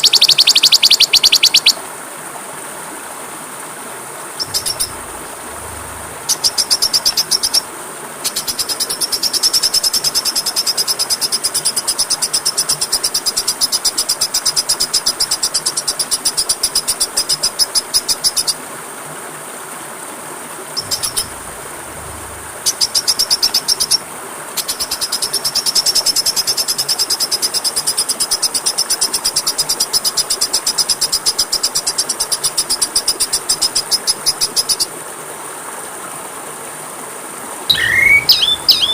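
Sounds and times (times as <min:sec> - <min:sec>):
rushing water: 0:00.0 - 0:38.9
high-pitched pulsed bird trill: 0:04.4 - 0:07.6, 0:20.8 - 0:23.5, 0:37.7 - 0:38.9.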